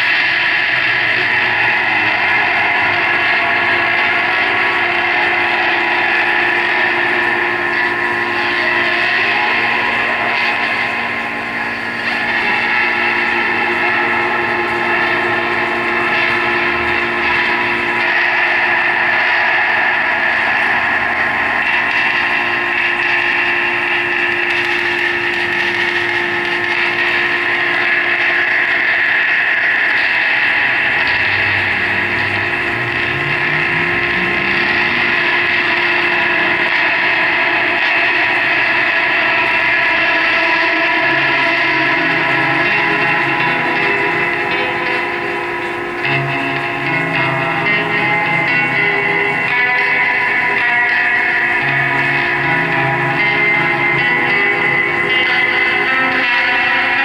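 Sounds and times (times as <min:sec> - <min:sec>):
band playing loud drone: 0:00.0 - 0:57.0
dense noise hiss: 0:00.0 - 0:57.0.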